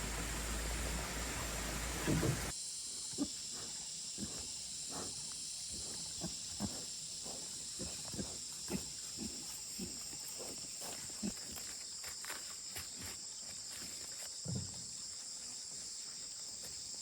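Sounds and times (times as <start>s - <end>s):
high-pitched insect chorus: 0.0s - 17.0s
soft irregular thuds: 0.2s - 2.5s.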